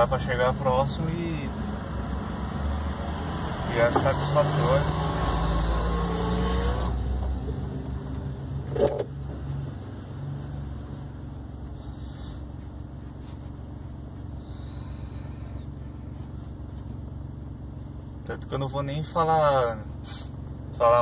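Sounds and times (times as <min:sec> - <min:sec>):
car engine running: 0:00.0 - 0:21.0
short sharp engine burst: 0:20.0 - 0:20.3.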